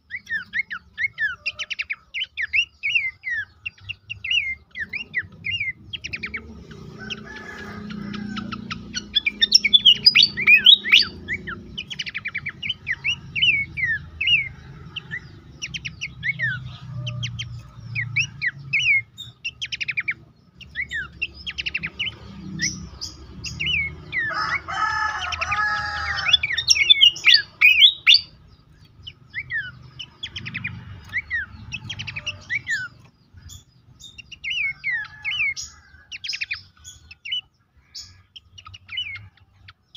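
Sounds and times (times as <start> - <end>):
bird chirping quickly: 0.0 - 39.9
low drawn-out bird call: 4.2 - 20.0, 20.7 - 28.4.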